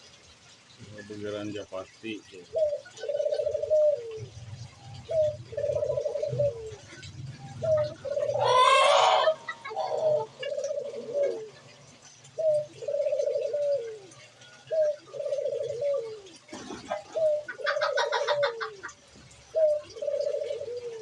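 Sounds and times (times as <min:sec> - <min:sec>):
dove cooing: 0:02.3 - 0:21.0.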